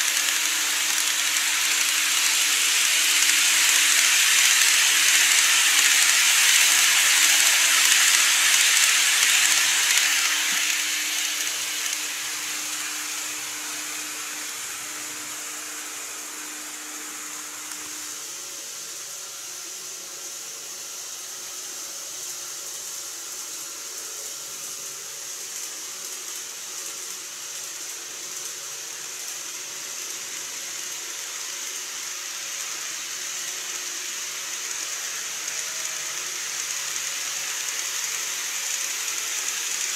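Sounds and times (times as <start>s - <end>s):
model train motor hum: 0.0s - 39.9s
model train wheels rolling on rail: 0.0s - 39.9s.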